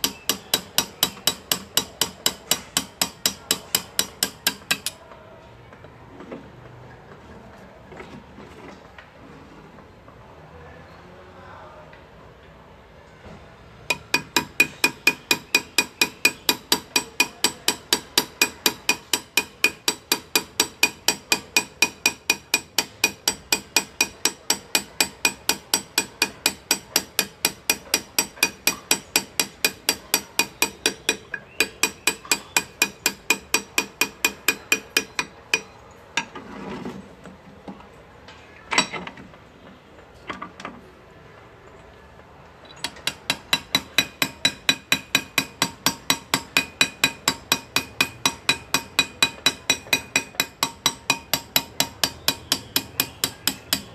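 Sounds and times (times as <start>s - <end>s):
hammer tapping chisel into metal: 0.0s - 5.0s, 13.9s - 36.4s, 38.7s - 39.1s, 42.8s - 53.9s.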